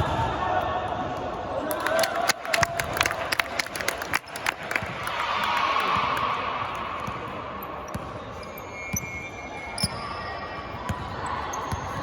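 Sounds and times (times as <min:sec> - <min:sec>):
sneakers squeaking on floor: 0:07.0 - 0:12.0.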